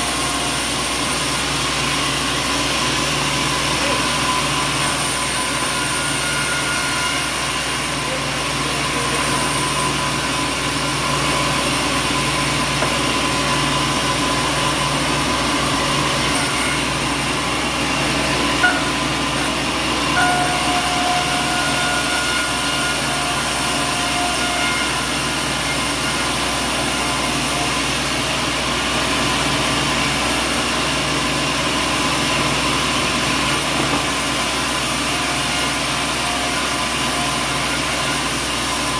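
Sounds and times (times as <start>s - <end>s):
sawmill machinery drone: 0.0s - 38.9s
faint machine whine: 18.3s - 24.5s.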